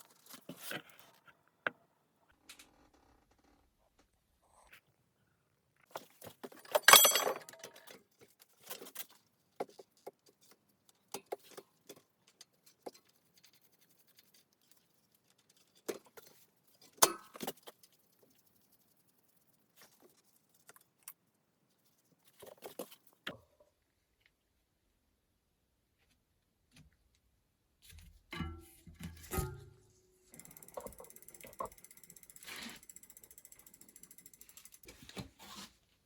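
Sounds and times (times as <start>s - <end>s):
metal parts and tools clinking: 6.5s - 8.0s
metal clatter: 6.6s - 8.0s.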